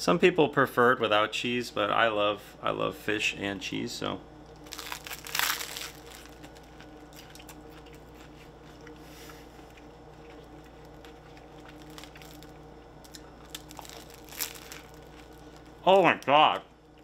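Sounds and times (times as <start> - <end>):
steady low hum: 0.0 - 17.0
person chewing: 4.6 - 15.8.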